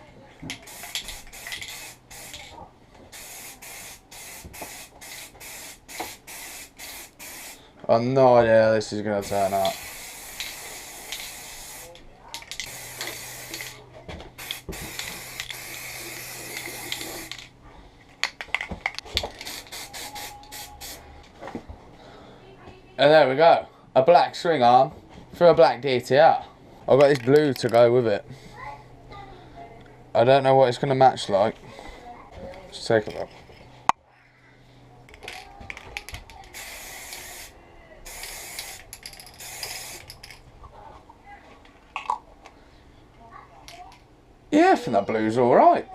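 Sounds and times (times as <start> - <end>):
spray paint can hissing: 0.5 - 7.6, 9.2 - 13.8, 14.4 - 17.5, 19.3 - 21.0, 36.3 - 40.4.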